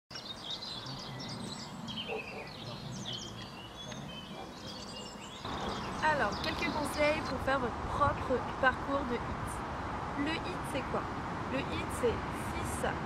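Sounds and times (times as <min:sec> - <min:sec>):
songbirds chirping and singing: 0:00.1 - 0:09.8.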